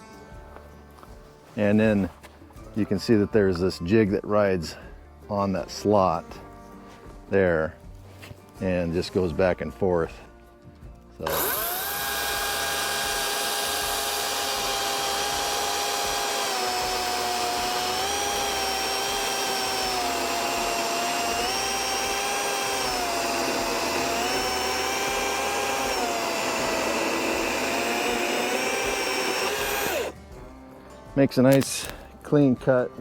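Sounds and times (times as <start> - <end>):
electric chainsaw cutting wood: 11.2 - 30.2.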